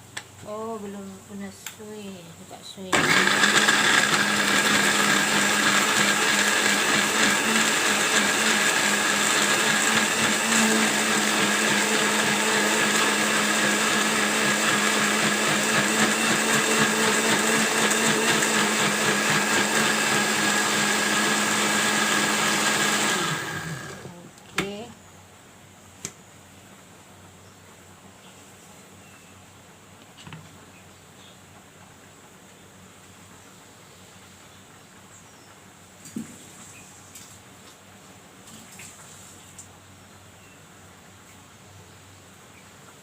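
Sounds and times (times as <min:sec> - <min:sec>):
kitchen blender running: 0:02.9 - 0:24.2.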